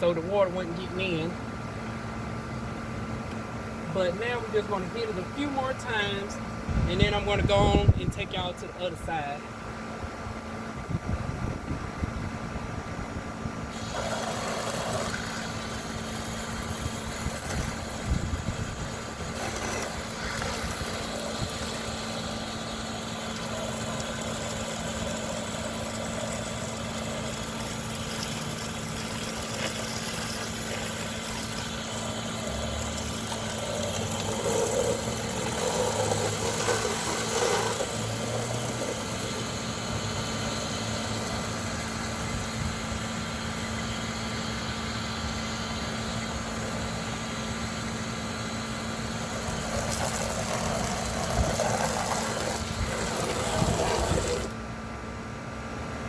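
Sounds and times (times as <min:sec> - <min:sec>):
motor hum: 0:09.9 - 0:56.0
water spraying against siding: 0:13.7 - 0:54.6.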